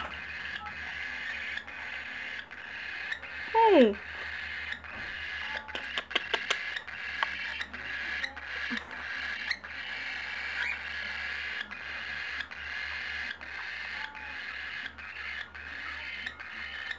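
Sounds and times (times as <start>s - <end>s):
baby birds rasping begging call: 0.0s - 16.9s.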